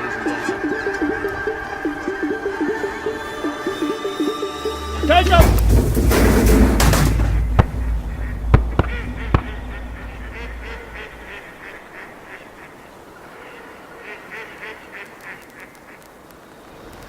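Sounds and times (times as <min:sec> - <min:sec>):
duck quacking: 0:00.0 - 0:02.9, 0:05.1 - 0:16.0.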